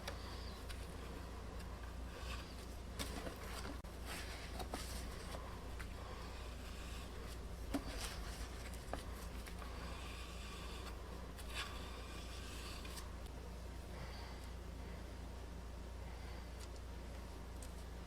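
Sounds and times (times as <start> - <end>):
hands rubbing wooden parts: 0.0 - 13.3
steady low hum: 0.0 - 18.0.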